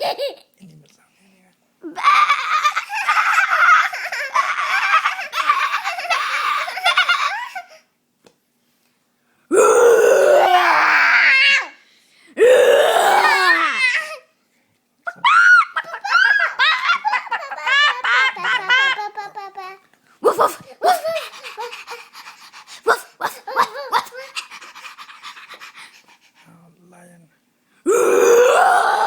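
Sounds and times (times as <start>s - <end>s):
young child laughing: 0.0s - 0.5s, 1.8s - 7.9s, 15.1s - 22.1s, 22.9s - 24.8s.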